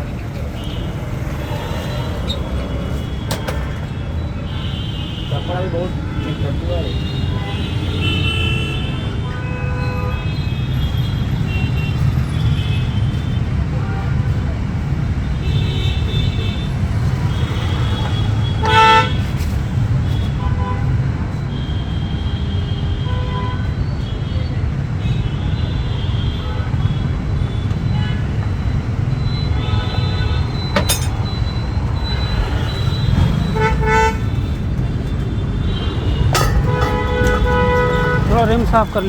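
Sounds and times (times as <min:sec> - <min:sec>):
low traffic engine rumble: 0:00.0 - 0:07.5, 0:30.0 - 0:39.0
vehicle horns honking: 0:00.3 - 0:12.0, 0:15.4 - 0:19.4, 0:29.2 - 0:39.0.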